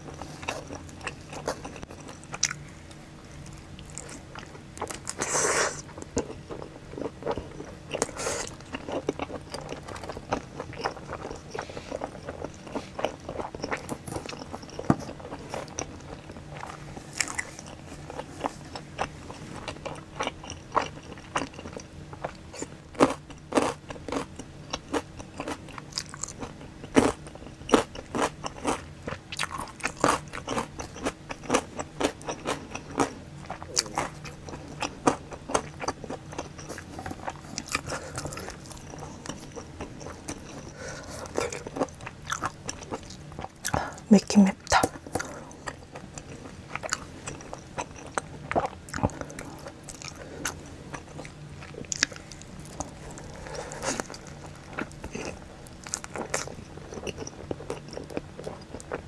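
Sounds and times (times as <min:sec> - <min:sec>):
faint low hum: 0:00.0 - 0:59.0
person biting and chewing pizza: 0:44.9 - 0:59.0.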